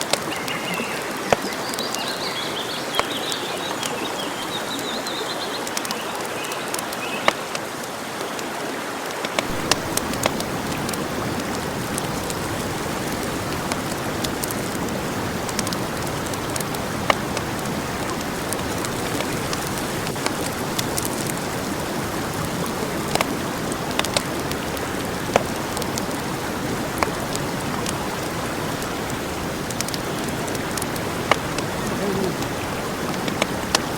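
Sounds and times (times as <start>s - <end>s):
birds chirping: 0.0s - 7.6s, 29.7s - 33.9s
fire crackles and pops: 9.2s - 33.9s
campfire hissing: 9.4s - 33.9s.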